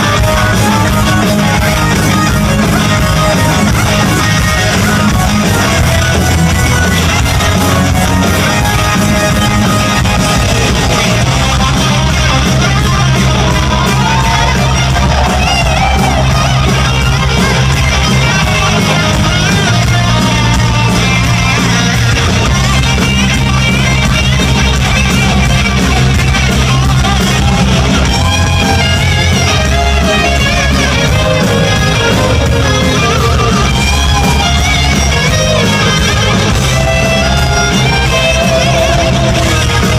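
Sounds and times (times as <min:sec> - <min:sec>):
bass line: 0:00.0 - 0:39.9
live rock band playing: 0:00.0 - 0:39.9.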